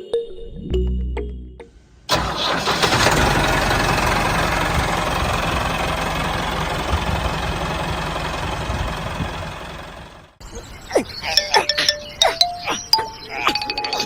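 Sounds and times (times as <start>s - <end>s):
engine running with low pulsing: 2.1s - 10.4s.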